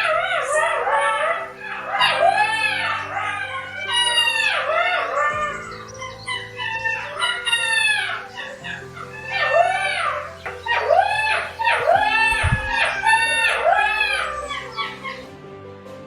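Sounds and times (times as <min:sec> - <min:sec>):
animal crying: 0:00.0 - 0:15.4
background music with low notes: 0:00.0 - 0:16.0.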